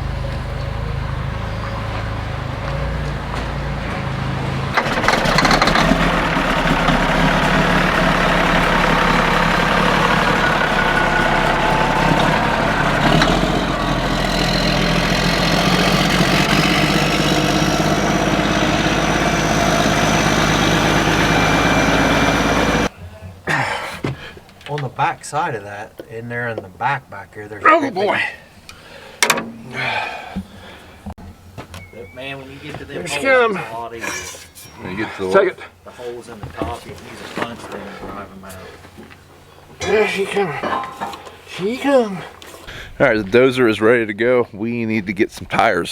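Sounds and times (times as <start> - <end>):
heavy diesel engine running: 0.0 - 22.9.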